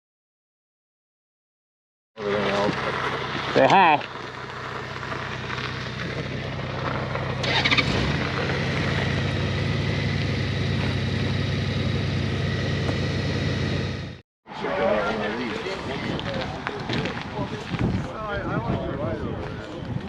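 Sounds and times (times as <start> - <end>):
motorcycle engine running: 2.2 - 14.2.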